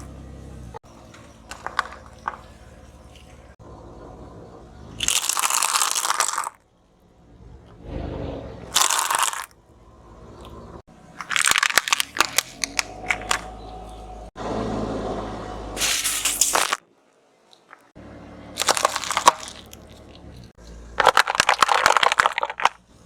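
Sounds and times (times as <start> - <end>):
brittle objects crushed under tyre: 0.8 - 3.6, 5.0 - 6.6, 8.7 - 9.6, 11.2 - 13.6, 15.8 - 16.8, 18.5 - 23.0.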